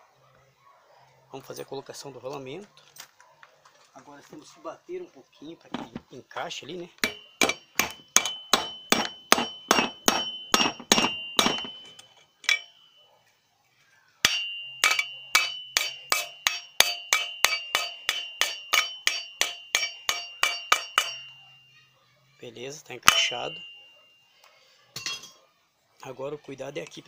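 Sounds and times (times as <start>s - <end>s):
hammer tapping metal bearing: 7.0s - 11.8s, 14.2s - 21.3s.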